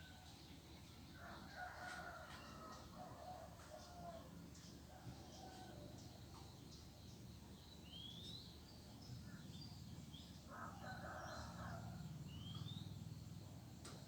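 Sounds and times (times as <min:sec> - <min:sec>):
small birds chirping: 0:11.2 - 0:14.0.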